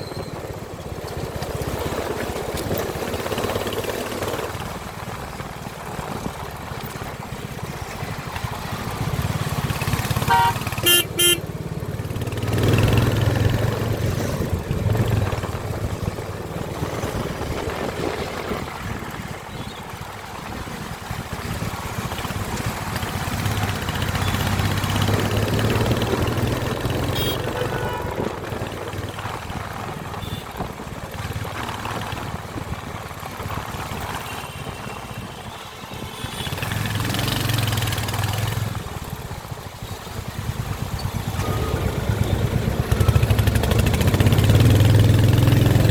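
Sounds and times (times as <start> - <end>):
motorcycle engine running: 0.2 - 35.3, 36.1 - 45.9.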